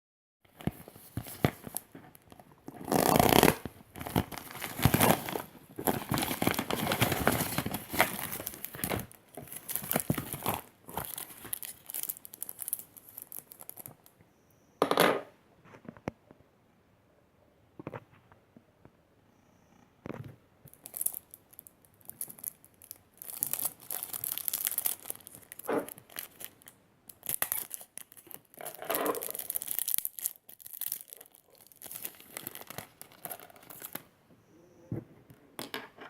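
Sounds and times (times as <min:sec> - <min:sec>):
packaging crinkling and tearing: 0:00.6 - 0:14.0, 0:20.7 - 0:34.1.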